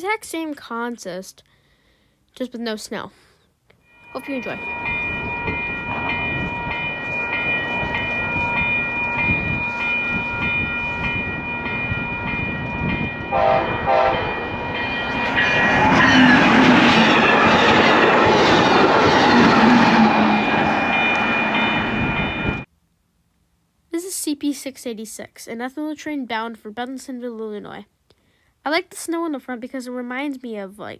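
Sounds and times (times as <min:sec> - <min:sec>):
steady high ringing: 0:03.8 - 0:22.7
train engine noise: 0:04.1 - 0:22.7
train horn notes: 0:13.3 - 0:14.6.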